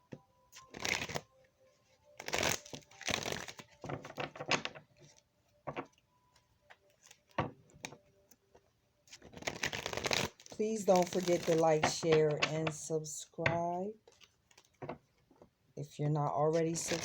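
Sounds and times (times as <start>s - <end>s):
cards being shuffled: 0.5s - 1.3s, 2.1s - 15.0s, 16.4s - 17.0s
cards snapping: 0.6s - 1.2s, 2.2s - 4.7s, 9.1s - 12.8s.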